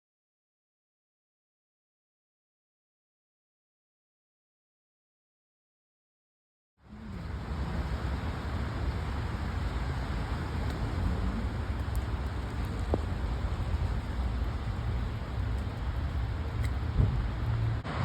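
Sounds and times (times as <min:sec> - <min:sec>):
storm wind buffeting microphone: 0:06.9 - 0:17.8.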